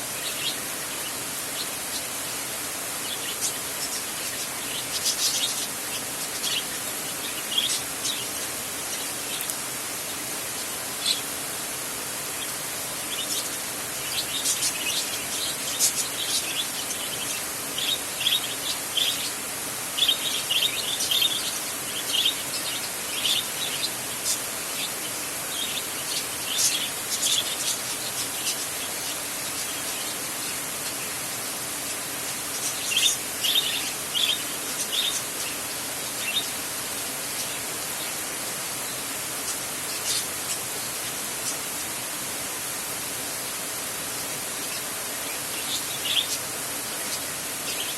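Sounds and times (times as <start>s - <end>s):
rain hiss: 0.0s - 47.9s
bird chirping: 3.0s - 9.5s, 12.4s - 31.5s, 32.3s - 36.7s, 38.9s - 41.6s, 44.5s - 47.9s.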